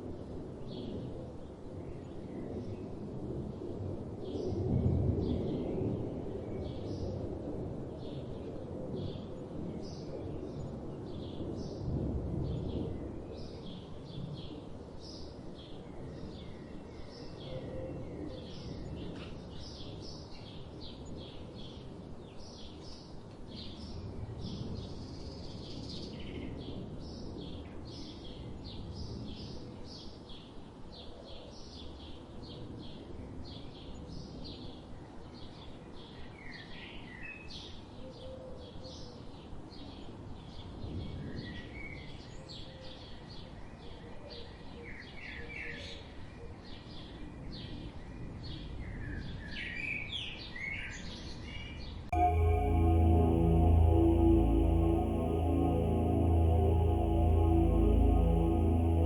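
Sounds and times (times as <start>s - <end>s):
low background rumble: 52.2s - 59.0s.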